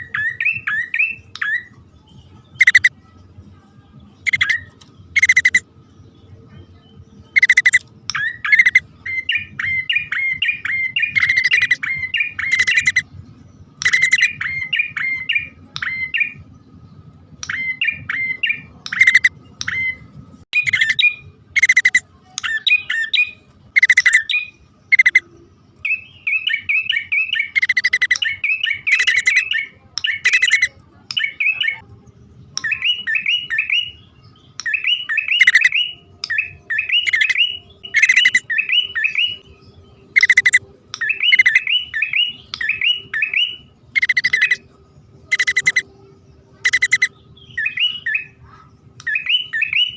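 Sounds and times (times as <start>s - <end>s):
bird harsh chips: 2.6s - 2.9s, 4.2s - 5.6s, 7.4s - 8.8s, 9.6s - 13.0s, 13.8s - 16.1s, 20.6s - 24.3s, 26.3s - 30.7s, 34.6s - 39.4s, 40.1s - 43.4s, 44.0s - 44.6s, 45.3s - 45.9s, 46.6s - 48.4s.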